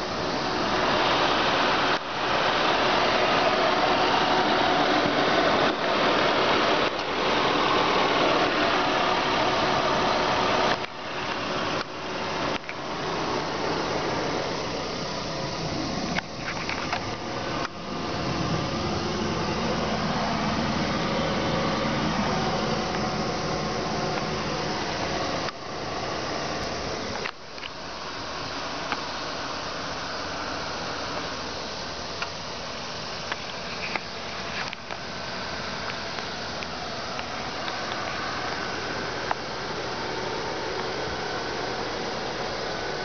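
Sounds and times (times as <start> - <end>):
car engine running: 0.0 - 43.0
loud hiss: 0.0 - 43.0.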